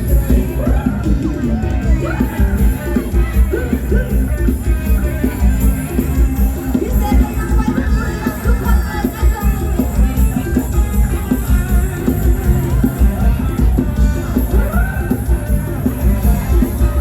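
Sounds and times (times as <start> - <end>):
drum kit: 0.0 - 17.0
guitar: 0.0 - 17.0
rock music: 0.0 - 17.0
strong bass beat: 0.0 - 17.0.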